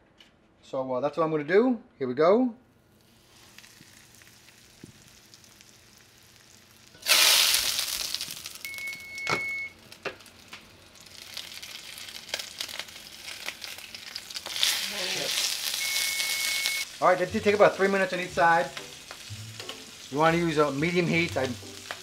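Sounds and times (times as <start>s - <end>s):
food sizzling in oil: 3.0s - 22.0s
short high beep: 8.7s - 9.7s, 15.8s - 16.8s.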